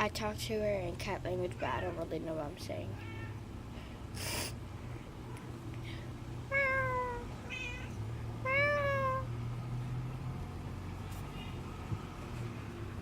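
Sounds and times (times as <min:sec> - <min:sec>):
cat meowing: 0:03.0 - 0:03.4, 0:06.5 - 0:09.3.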